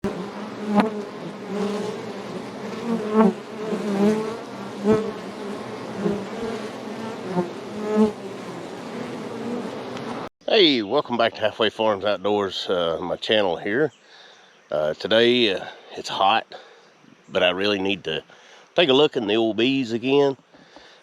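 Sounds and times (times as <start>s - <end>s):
honey bees buzzing: 0.0s - 10.3s.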